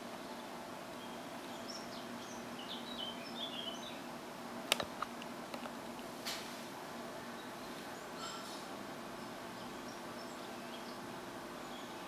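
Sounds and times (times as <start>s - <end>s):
small birds chirping: 0.0s - 4.3s, 7.1s - 12.0s
sharp clicks: 4.7s - 5.8s.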